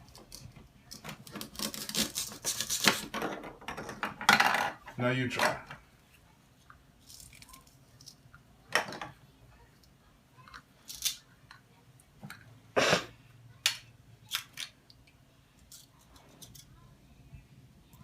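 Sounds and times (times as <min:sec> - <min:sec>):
toy pieces ripping apart: 0:01.2 - 0:03.1, 0:10.8 - 0:11.3.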